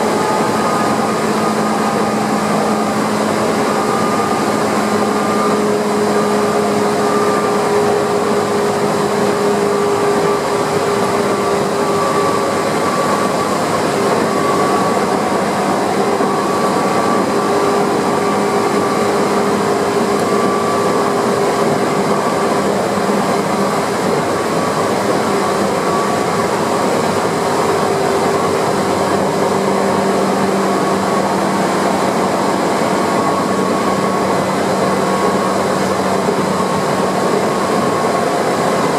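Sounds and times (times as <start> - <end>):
humming tones from running gear: 0.0 - 38.9
wheels rumbling on rail: 0.0 - 38.9.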